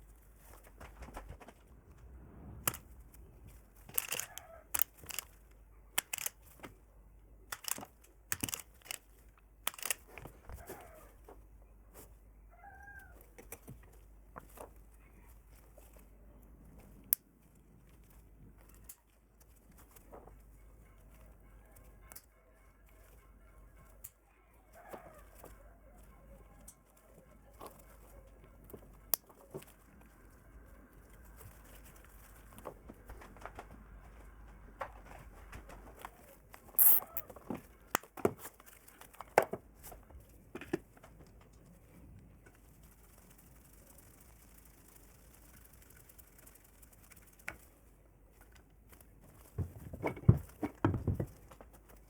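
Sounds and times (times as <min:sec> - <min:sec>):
rustling: 0:00.0 - 0:22.0, 0:24.7 - 0:52.0
clicks and knocks on metal parts: 0:07.5 - 0:09.0.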